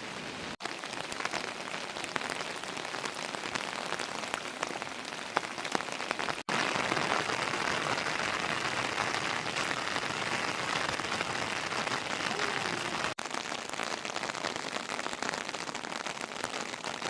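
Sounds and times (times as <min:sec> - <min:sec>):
heavy rain falling: 0:00.0 - 0:17.0
raindrop hits: 0:00.0 - 0:17.0.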